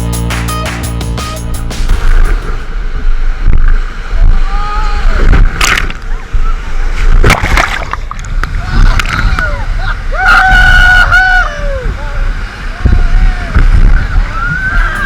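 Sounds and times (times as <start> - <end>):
electronic music: 0.0 - 2.8, 14.7 - 15.0
water splash: 1.8 - 4.3, 5.1 - 9.6
whitewater rushing around raft: 2.7 - 15.0.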